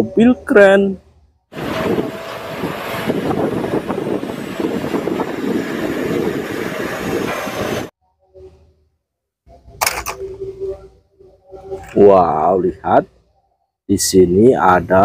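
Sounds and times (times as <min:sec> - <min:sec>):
heavy diesel engine: 0:01.6 - 0:07.9.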